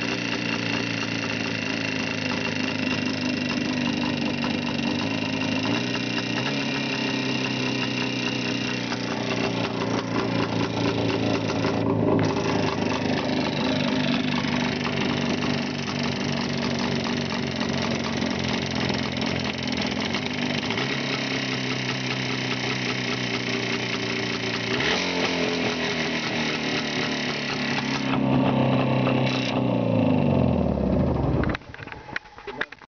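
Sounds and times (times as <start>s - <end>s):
knocking engine running: 0.0s - 32.7s.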